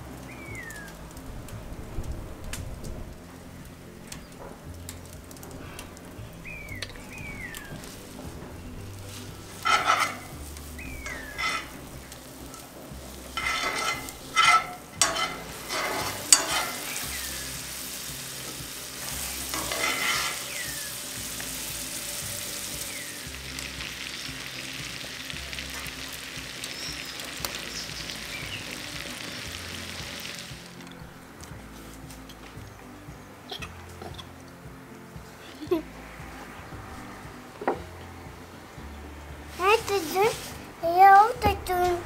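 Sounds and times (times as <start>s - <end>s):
butter sizzling in a skillet: 6.4s - 31.2s
metal spoon scraping a pan: 9.1s - 11.9s, 12.6s - 22.8s.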